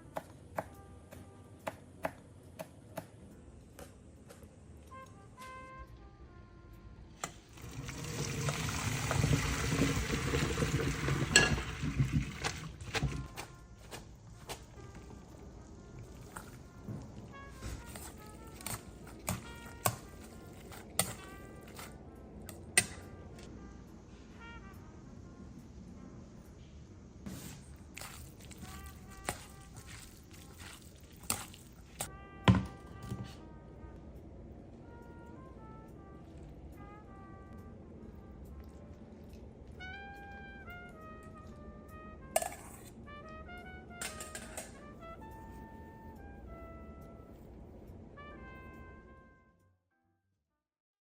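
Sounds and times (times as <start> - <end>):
faint background music: 0.0 - 50.3
water pouring: 7.5 - 13.3, 27.9 - 32.0.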